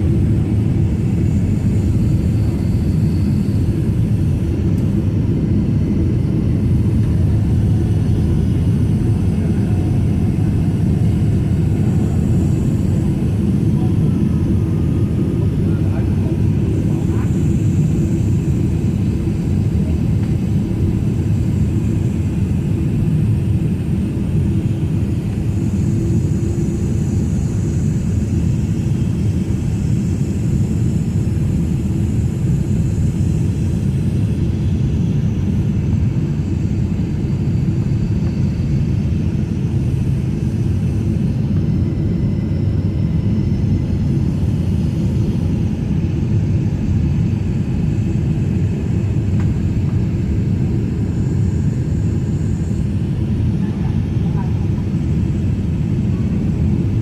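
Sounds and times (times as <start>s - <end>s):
jet engines rumbling: 0.0s - 57.0s.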